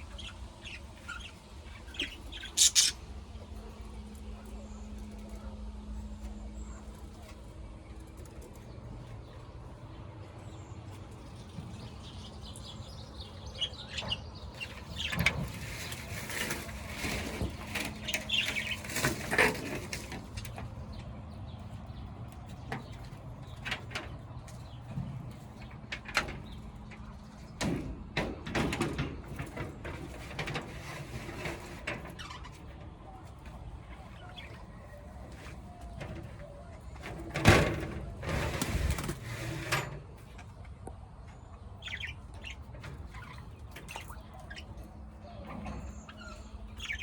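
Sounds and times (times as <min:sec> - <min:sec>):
steady low hum: 0:00.0 - 0:28.6
caged birds chirping: 0:00.0 - 0:47.0.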